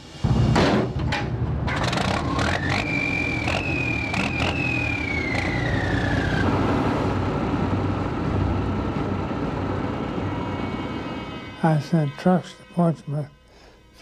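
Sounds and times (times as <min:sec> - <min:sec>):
vehicle engine rumbling: 0:01.1 - 0:11.6
high whine sliding downward: 0:01.7 - 0:13.3.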